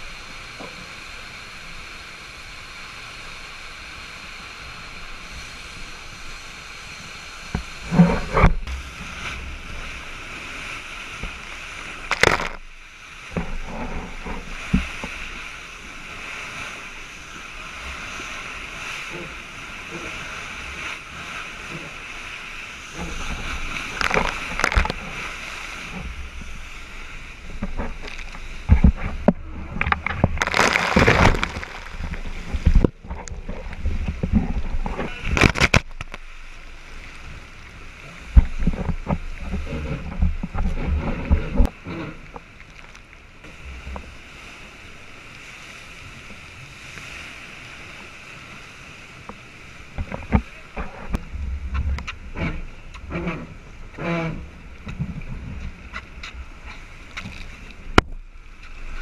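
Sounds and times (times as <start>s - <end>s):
water rushing past a boat: 0.0s - 59.0s
waves splashing against boat: 0.0s - 59.0s
wind noise: 22.4s - 37.6s.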